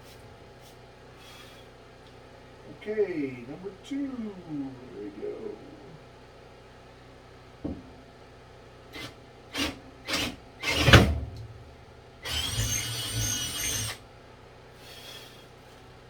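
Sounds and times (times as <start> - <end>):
power drill drilling: 9.0 - 11.2, 12.2 - 14.0.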